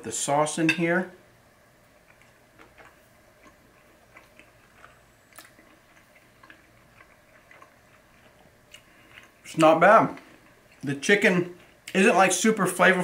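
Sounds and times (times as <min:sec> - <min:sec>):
wet mouth clicks chewing: 0:02.0 - 0:09.4.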